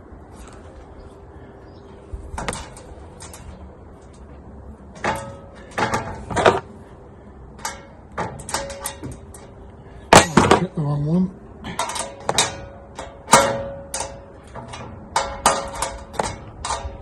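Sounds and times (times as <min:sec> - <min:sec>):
metal parts clanking together: 0:05.0 - 0:06.7, 0:07.6 - 0:10.7, 0:11.6 - 0:17.0.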